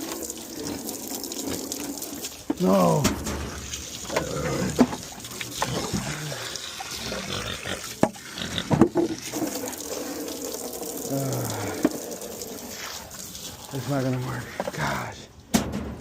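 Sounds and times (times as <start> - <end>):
pigs grunting: 0.0 - 13.9
running water: 0.0 - 16.0
sharp knocks: 15.5 - 16.0.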